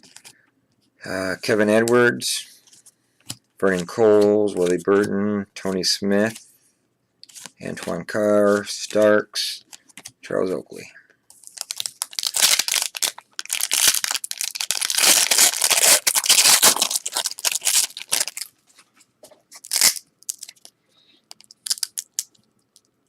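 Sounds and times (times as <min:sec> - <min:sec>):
foil wrapper tearing and crinkling: 0:11.4 - 0:18.5, 0:19.6 - 0:20.7, 0:21.4 - 0:22.3.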